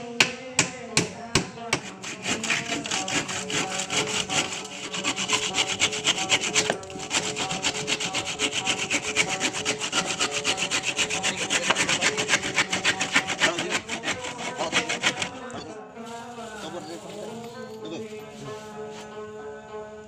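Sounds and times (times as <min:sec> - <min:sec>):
saw cutting through wood: 0:01.7 - 0:15.7.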